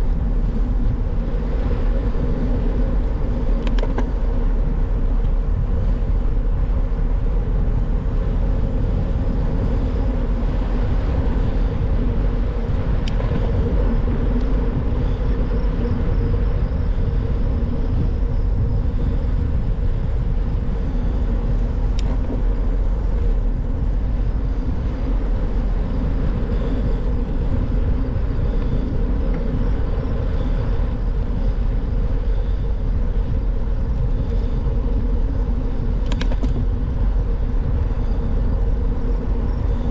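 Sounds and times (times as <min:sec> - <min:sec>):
bicycle road noise: 0:00.0 - 0:39.9
wind on microphone: 0:00.0 - 0:39.9
faint clicks: 0:03.6 - 0:04.1, 0:36.0 - 0:36.6.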